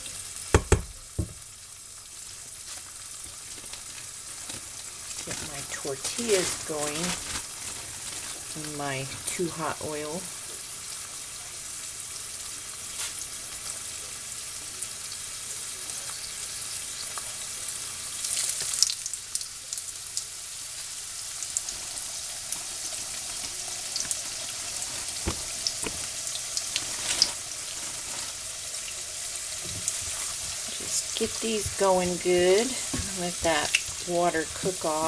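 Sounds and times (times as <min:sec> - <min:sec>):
oil crackling and popping: 0:00.0 - 0:11.5, 0:12.2 - 0:35.0
tortillas sizzling in hot oil: 0:00.0 - 0:35.0
sharp knocks: 0:00.6 - 0:01.4.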